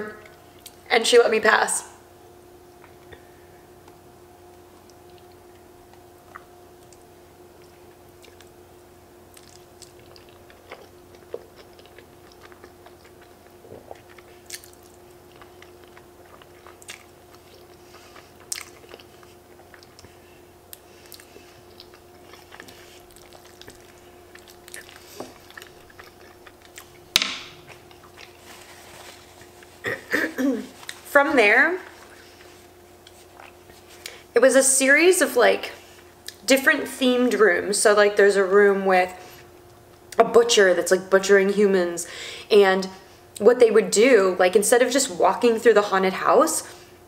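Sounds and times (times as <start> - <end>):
steady low hum: 0.0 - 47.0
chewing soft pasta: 2.8 - 31.1, 31.8 - 34.3
paper napkin rustle: 27.6 - 31.1.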